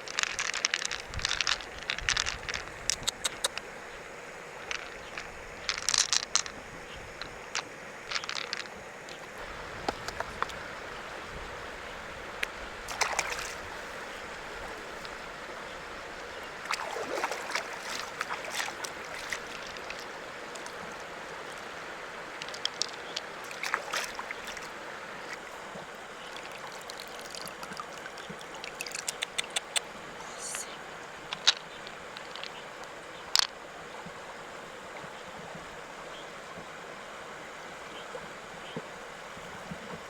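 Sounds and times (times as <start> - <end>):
river water running: 0.0 - 40.0
sharp clicks: 2.9 - 3.6, 28.8 - 30.6.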